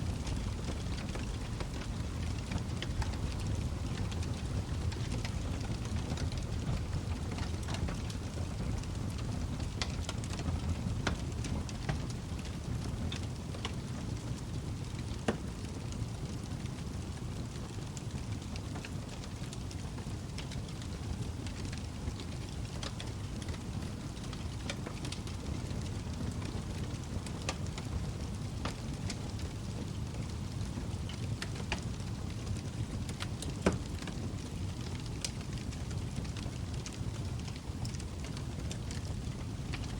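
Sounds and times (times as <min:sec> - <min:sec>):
fire crackles and pops: 0:00.0 - 0:39.9
log fire rumbling: 0:00.0 - 0:39.9.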